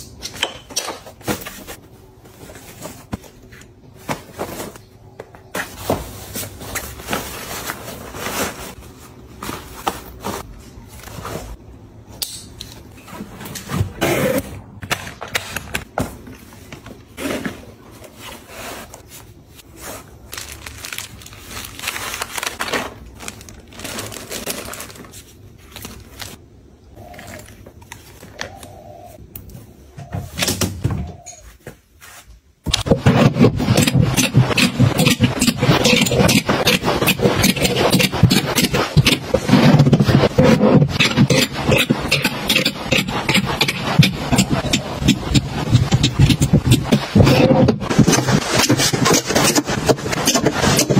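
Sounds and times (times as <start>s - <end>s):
rustling clicking and scraping: 32.7s - 50.9s.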